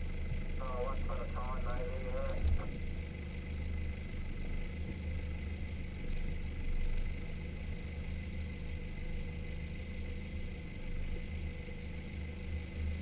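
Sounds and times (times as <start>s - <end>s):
vehicle engine running low: 0.0s - 13.0s.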